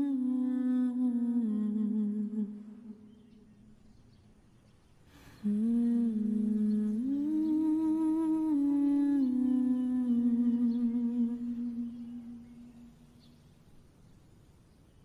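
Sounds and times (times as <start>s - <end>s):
person humming a melody: 0.0s - 3.2s, 5.2s - 13.0s.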